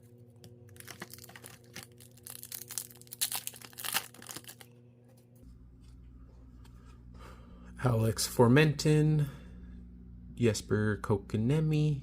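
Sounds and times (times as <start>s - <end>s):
foil wrapper crinkling and tearing: 0.7s - 4.7s.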